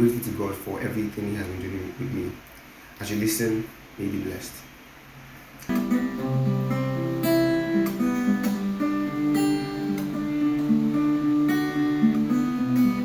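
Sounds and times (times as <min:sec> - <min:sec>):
acoustic guitar strumming: 0:05.7 - 0:13.0.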